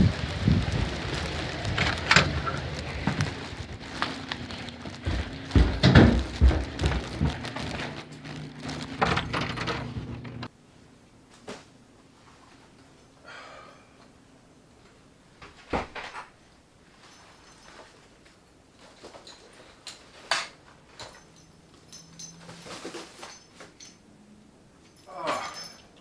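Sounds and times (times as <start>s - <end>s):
heavy rain falling: 0.0s - 10.5s.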